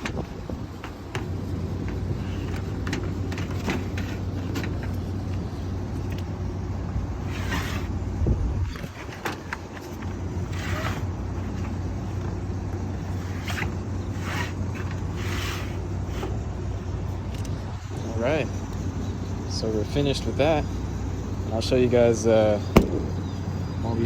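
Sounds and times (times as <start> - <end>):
clicks and knocks of metal panels: 0.0 - 5.4
steady low hum: 0.0 - 24.0
rustling scrapes: 7.2 - 8.0, 8.7 - 11.8, 13.0 - 16.5.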